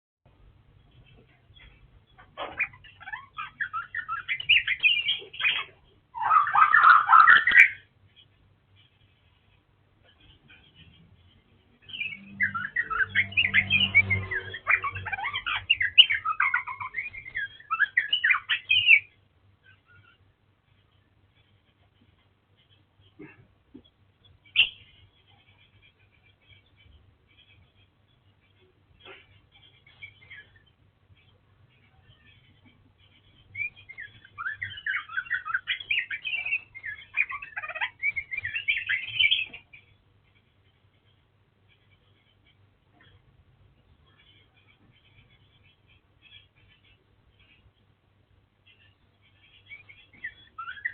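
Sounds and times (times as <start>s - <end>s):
faint bird chirps: 0.7s - 50.9s
bird singing rapid varied song: 1.6s - 7.9s, 10.6s - 19.2s, 33.1s - 39.9s, 48.7s - 50.9s.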